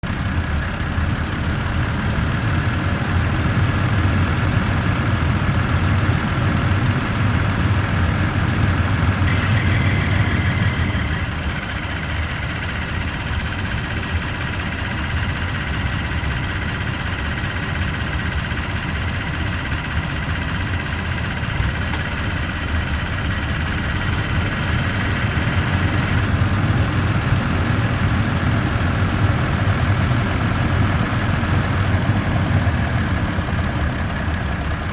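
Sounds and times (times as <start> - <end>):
engine running: 0.0 - 34.9
high-pitched ticking: 9.2 - 26.3.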